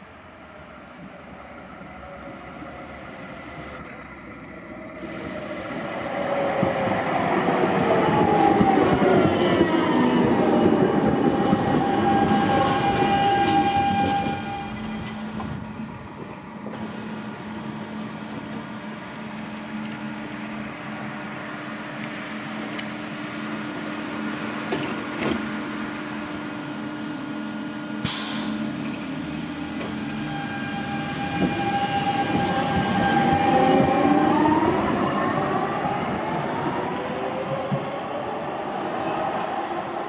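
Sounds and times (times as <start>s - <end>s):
tram electrical hum: 0.0s - 40.0s
traction motor whine rising: 2.1s - 28.0s
short sharp hiss: 28.0s - 28.6s.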